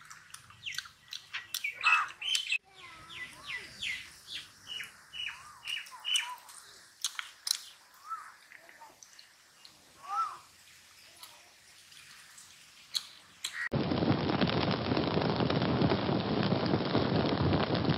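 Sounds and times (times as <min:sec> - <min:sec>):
person eating chicken by hand: 0:00.0 - 0:02.4
small bird chirping: 0:00.4 - 0:13.7.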